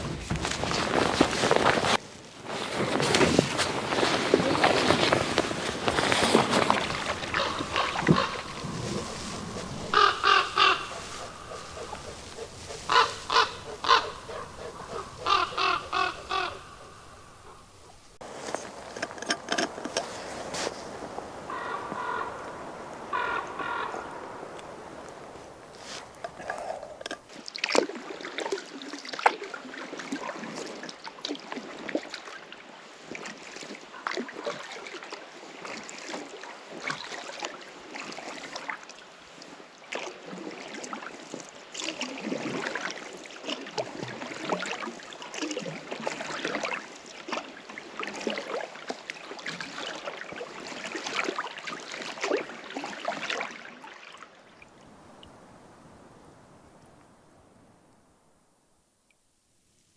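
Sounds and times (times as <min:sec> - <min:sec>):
paddle strokes splashing water: 0:00.0 - 0:27.3.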